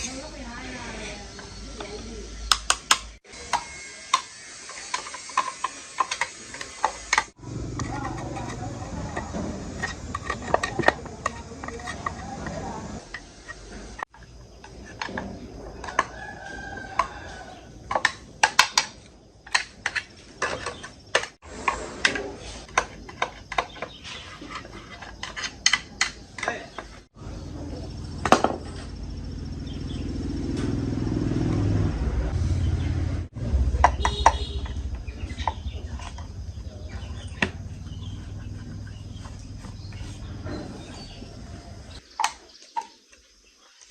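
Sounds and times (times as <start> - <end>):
metal tools clicking and tapping: 1.4 - 13.6, 17.9 - 21.4, 24.6 - 26.9
rooster crowing: 15.7 - 17.9.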